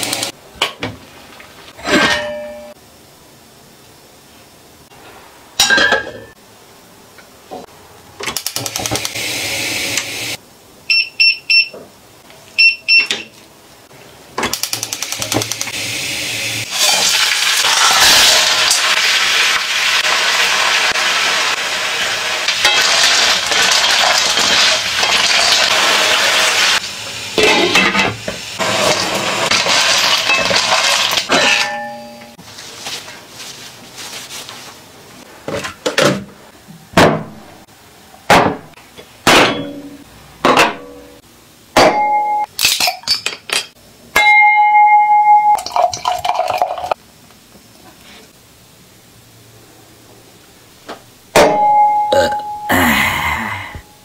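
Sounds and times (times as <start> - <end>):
short beeps: 10.9 - 11.7
snails sizzling in hot oil: 16.6 - 27.4, 28.3 - 31.3.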